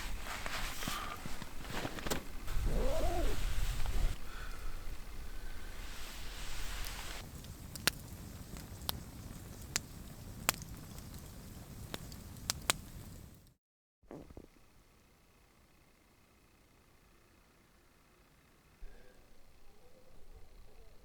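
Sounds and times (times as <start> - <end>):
fire popping: 0.0 - 13.5
campfire burning: 0.0 - 13.6.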